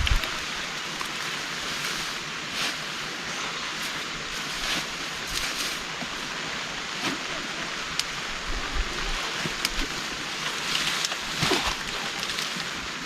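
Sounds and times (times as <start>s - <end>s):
wind rumbling: 0.0s - 0.8s
heavy rain hissing: 0.0s - 13.0s.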